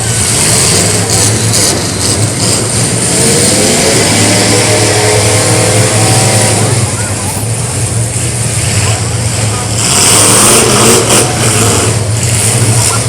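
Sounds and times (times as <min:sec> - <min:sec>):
car engines running loud: 0:00.0 - 0:13.0
engine revving: 0:00.0 - 0:13.0.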